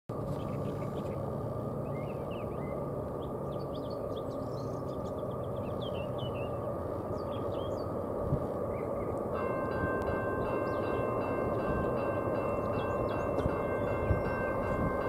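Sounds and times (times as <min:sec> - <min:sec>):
diesel locomotive rumbling: 0:00.1 - 0:15.0
small birds chirping: 0:00.2 - 0:08.0.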